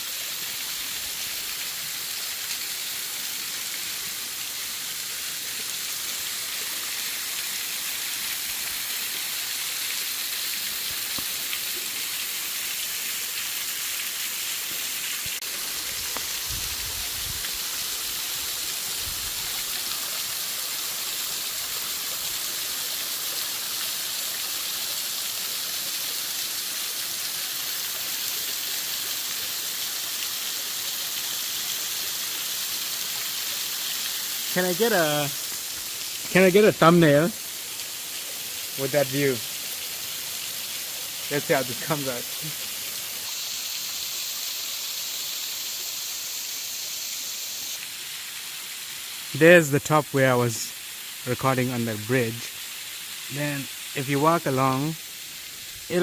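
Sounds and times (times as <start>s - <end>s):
waterfall rushing: 32.8s - 56.0s.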